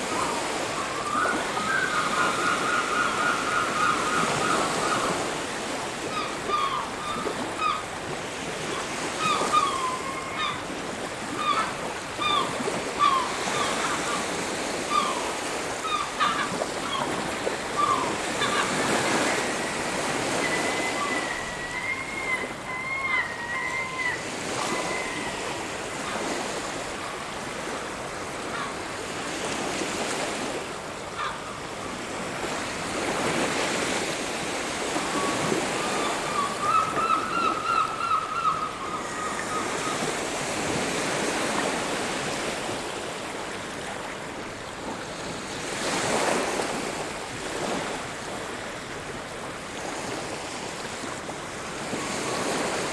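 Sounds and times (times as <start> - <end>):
faint high-pitched calls: 0.0 - 5.2, 6.1 - 7.8, 9.2 - 10.6, 11.4 - 14.3, 17.8 - 26.2, 35.0 - 40.8
sea waves washing onto beach: 0.0 - 21.6.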